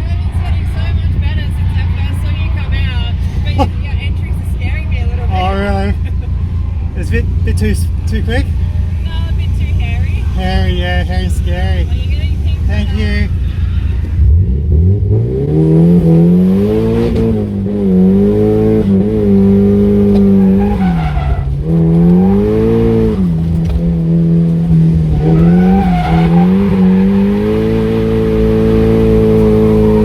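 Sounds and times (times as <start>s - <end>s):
car engine revving hard: 0.0s - 30.0s
tyres squealing: 19.6s - 30.0s.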